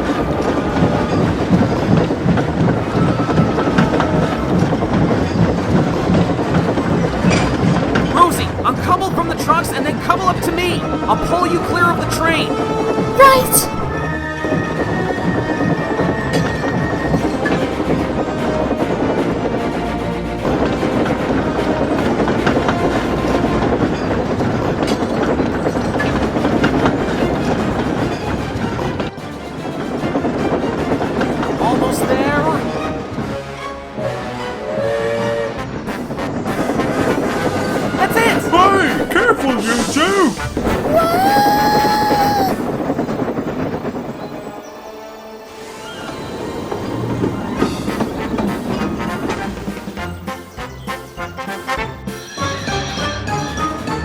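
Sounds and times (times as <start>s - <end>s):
wheels clacking: 0.0s - 12.2s
train rumbling on track: 0.0s - 51.3s.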